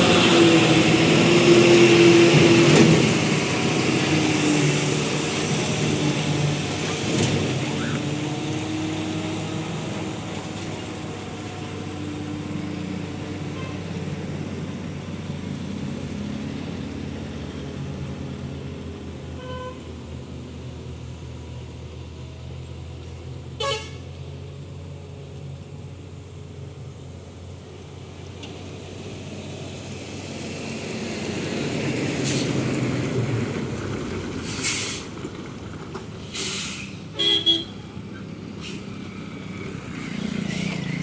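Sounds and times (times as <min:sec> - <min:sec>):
heavy truck engine droning: 0:00.0 - 0:41.0
vehicle horn toots: 0:13.6 - 0:13.8, 0:19.4 - 0:19.9, 0:23.6 - 0:24.1, 0:37.1 - 0:37.8.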